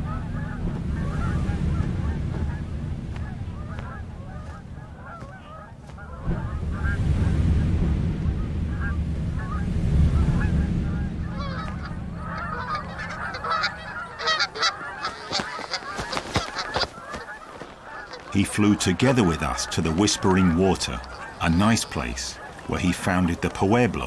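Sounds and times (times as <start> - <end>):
geese honking: 0.0 - 24.0
steady low rumble: 0.0 - 24.0.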